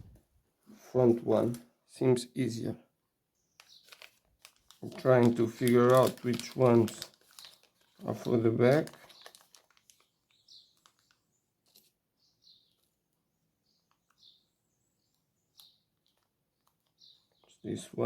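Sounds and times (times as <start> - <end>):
faint clicks of small parts: 15.0 - 17.6.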